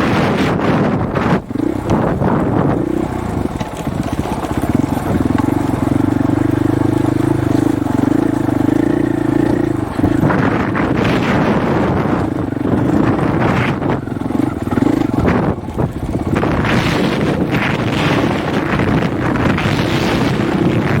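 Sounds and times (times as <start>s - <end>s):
dirt bike engine running: 0.0s - 21.0s
wind buffeting microphone: 0.0s - 21.0s.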